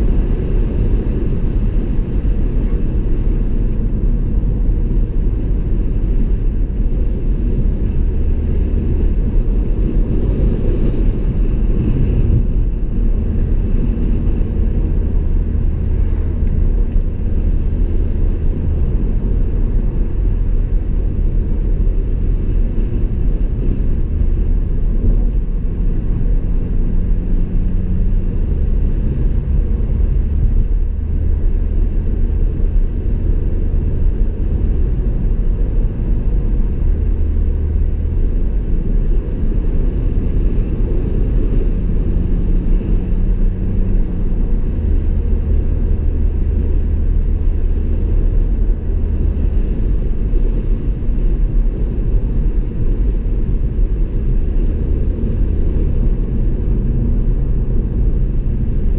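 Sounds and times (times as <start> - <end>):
car engine and tyre rumble: 0.0 - 58.9.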